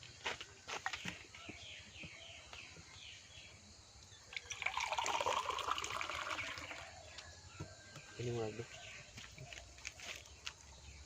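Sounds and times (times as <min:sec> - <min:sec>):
water pouring and splashing: 0:04.3 - 0:06.8.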